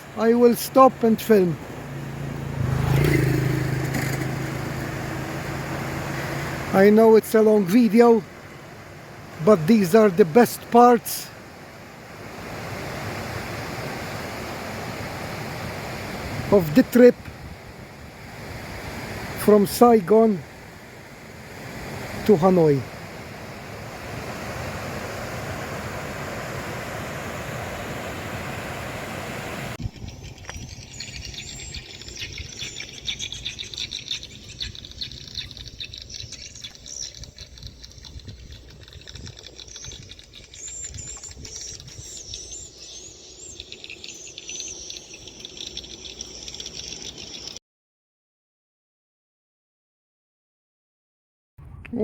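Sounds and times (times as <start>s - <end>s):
wind rushing over microphone: 12.1s - 19.6s, 21.2s - 43.3s
high twittering bird chirps: 29.8s - 47.6s.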